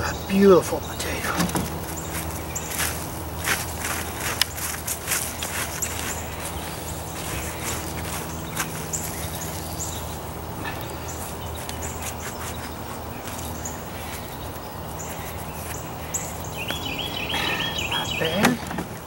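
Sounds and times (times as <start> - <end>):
steady low hum: 0.0 - 19.0
digging in soil: 1.2 - 16.2.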